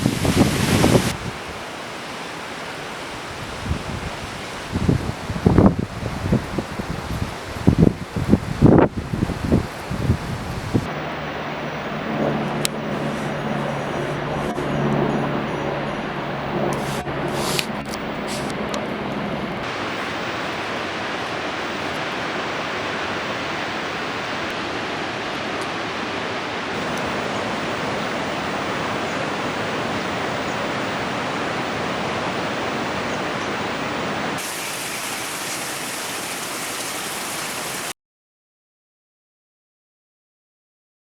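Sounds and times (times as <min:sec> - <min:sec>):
waterfall rushing: 0:00.0 - 0:05.7, 0:19.6 - 0:38.0.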